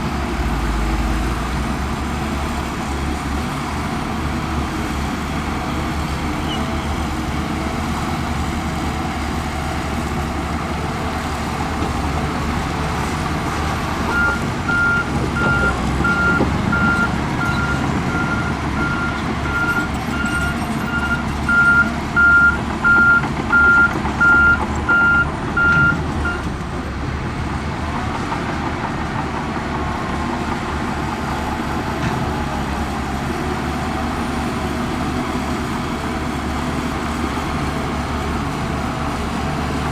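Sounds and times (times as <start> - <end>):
diesel engine running: 0.0 - 39.9
reversing alarm beeping: 14.1 - 26.5.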